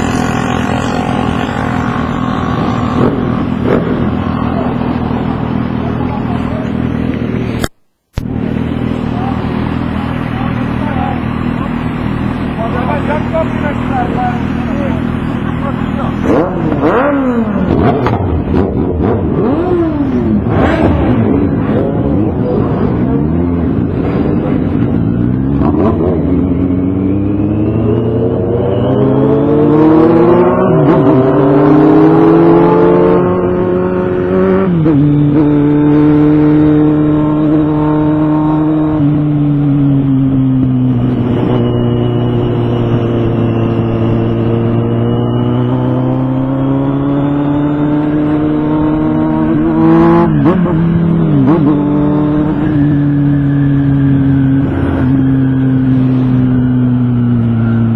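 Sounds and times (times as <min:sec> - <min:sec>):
motorcycle engine accelerating: 0:00.0 - 0:57.9.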